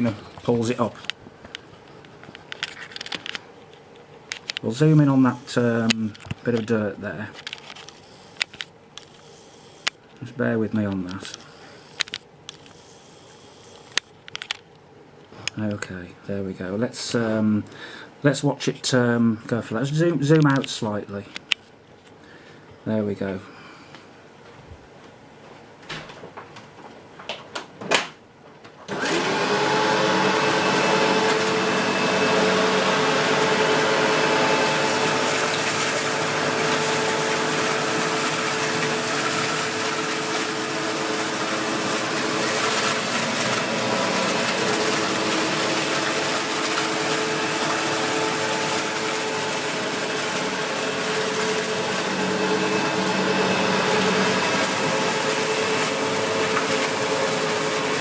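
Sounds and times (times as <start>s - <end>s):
vacuum cleaner on carpet: 28.9s - 58.0s.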